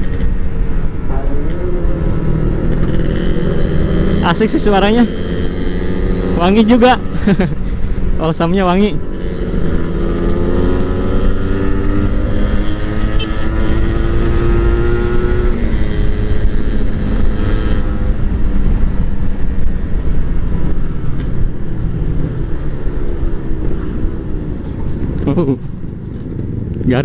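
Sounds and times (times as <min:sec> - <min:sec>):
motorcycle engine accelerating: 0:00.0 - 0:08.1, 0:08.7 - 0:27.0
wind rush over microphone: 0:10.9 - 0:25.3.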